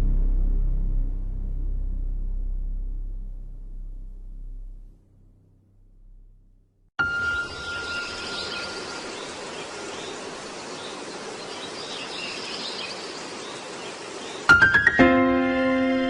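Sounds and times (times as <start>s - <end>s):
faint bird chirps: 7.0s - 14.5s
steady background hiss: 7.0s - 14.6s
music: 14.5s - 16.0s.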